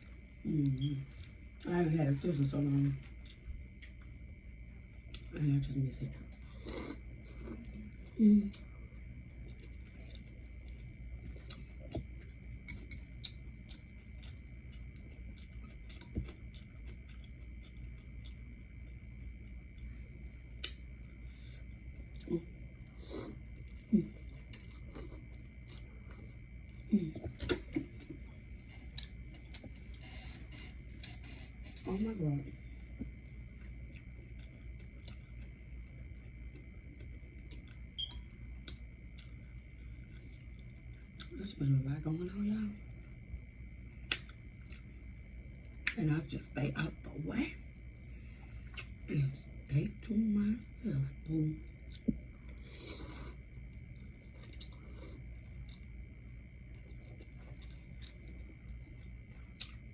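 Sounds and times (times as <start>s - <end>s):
faint high whine: 0.0s - 59.9s
low steady hum: 0.0s - 59.9s
close chewing with mouth clicks: 6.3s - 28.2s, 28.8s - 30.0s, 32.8s - 41.4s, 44.0s - 45.0s, 48.6s - 49.1s, 51.8s - 56.0s, 56.6s - 59.9s.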